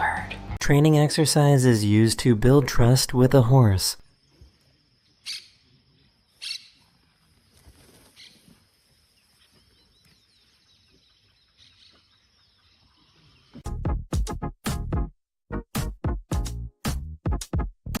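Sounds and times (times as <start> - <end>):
faint bird chirps: 4.1 - 13.6.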